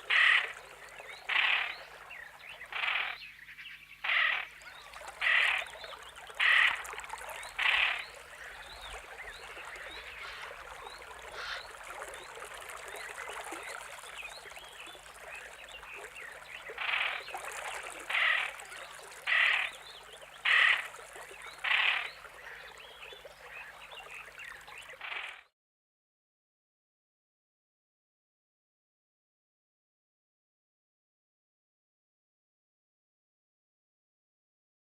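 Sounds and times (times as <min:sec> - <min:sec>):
bird loud repeated call: 0:00.0 - 0:00.6.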